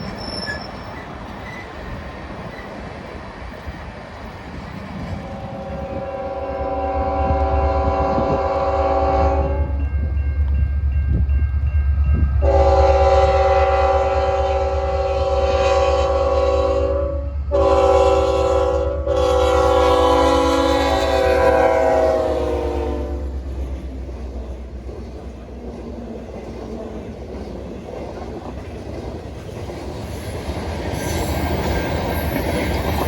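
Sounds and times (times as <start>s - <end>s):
locomotive air horn blasts: 5.3s - 9.8s, 12.4s - 23.4s.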